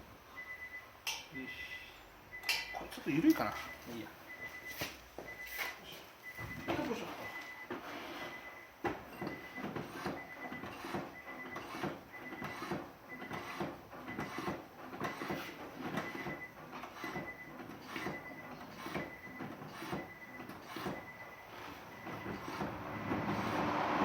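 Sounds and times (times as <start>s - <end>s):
short high beep: 1.4s - 2.9s
rhythmic mechanical clicking and knocking: 8.8s - 23.6s.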